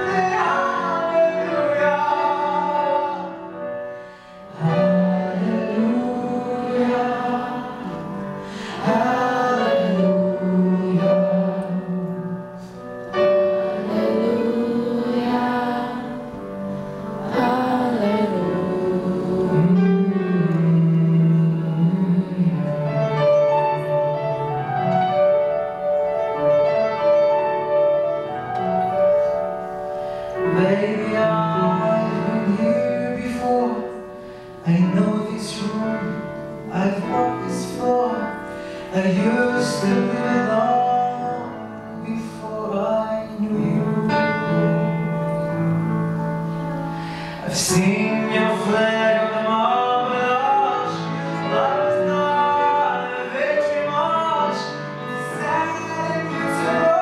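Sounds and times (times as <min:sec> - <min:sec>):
man singing slow ballad: 0:00.0 - 0:12.9, 0:13.6 - 0:23.9, 0:30.3 - 0:46.2, 0:47.0 - 0:57.0
piano accompaniment: 0:00.0 - 0:57.0.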